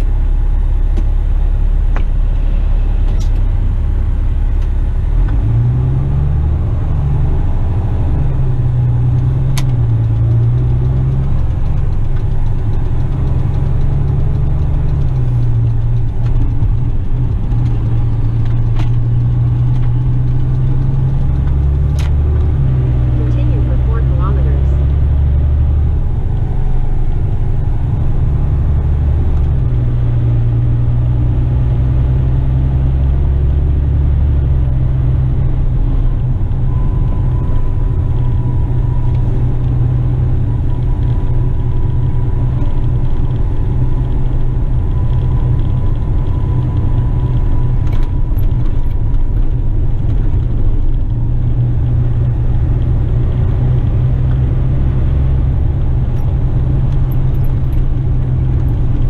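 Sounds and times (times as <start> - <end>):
truck diesel engine drone: 0.0 - 59.0.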